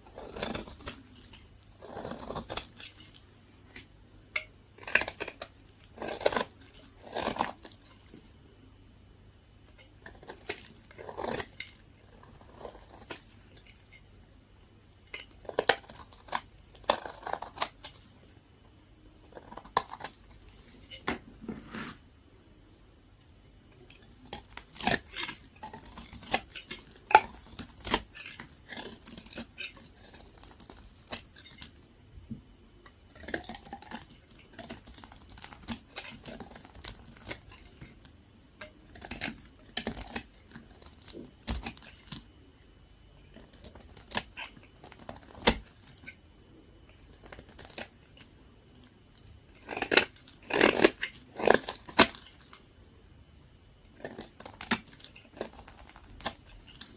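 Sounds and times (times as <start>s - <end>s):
soap being cut crackling: 0.1s - 3.1s, 4.8s - 7.8s, 10.1s - 13.3s, 15.4s - 18.0s, 24.3s - 31.7s, 49.6s - 52.2s.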